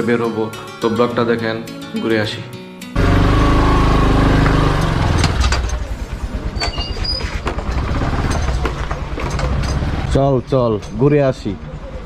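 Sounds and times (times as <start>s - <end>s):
motorcycle engine running: 3.0s - 6.6s, 7.5s - 10.1s.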